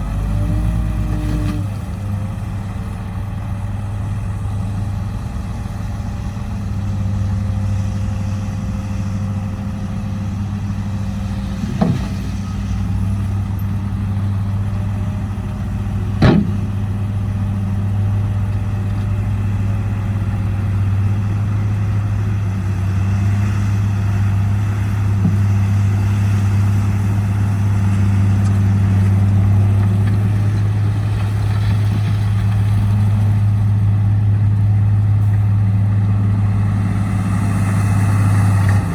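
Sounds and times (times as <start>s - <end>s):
diesel truck engine running: 0.0s - 38.9s
sharp knocks: 11.6s - 12.6s, 16.2s - 16.8s.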